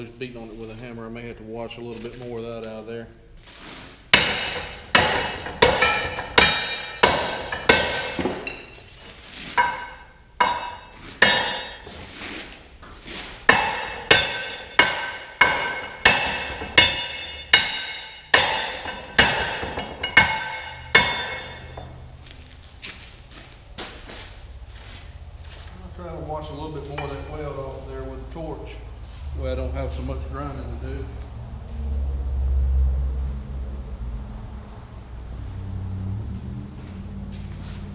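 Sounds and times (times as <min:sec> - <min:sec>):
hammer striking steel: 0:04.1 - 0:08.9, 0:09.6 - 0:11.9, 0:13.5 - 0:22.0, 0:26.8 - 0:27.6.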